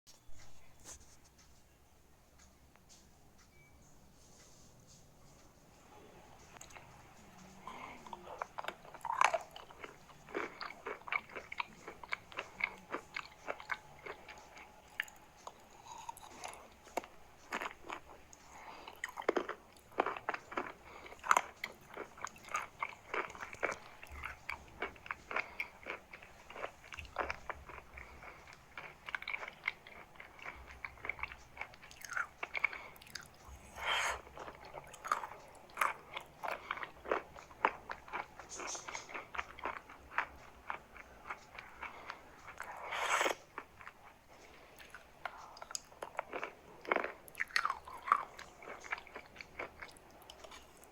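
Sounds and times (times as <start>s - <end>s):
chalk being chewed: 7.7s - 50.9s.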